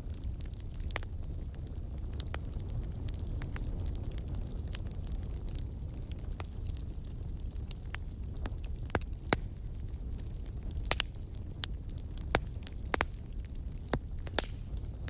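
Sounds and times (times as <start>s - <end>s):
fire crackling: 0.0s - 15.0s
sharp pops of fire: 7.6s - 15.0s.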